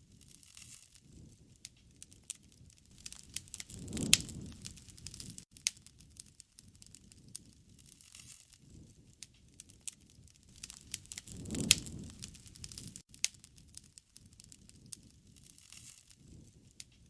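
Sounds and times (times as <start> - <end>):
wood fire crackling: 0.0 - 17.0
low rush: 10.6 - 13.0.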